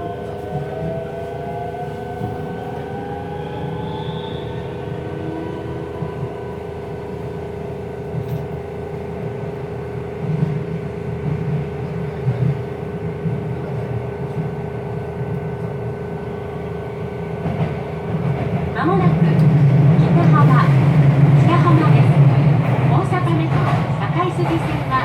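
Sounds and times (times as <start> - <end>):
train hum: 0.0 - 25.0
train inverter whine: 0.0 - 25.0
track knocks: 20.2 - 25.0.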